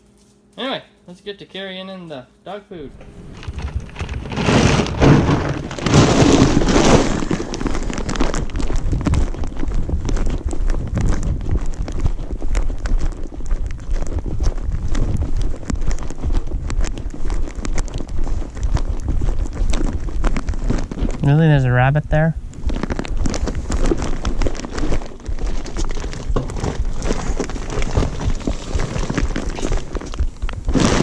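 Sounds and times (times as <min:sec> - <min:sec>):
microphone handling noise: 0:02.8 - 0:31.0
wind buffeting microphone: 0:08.4 - 0:30.8.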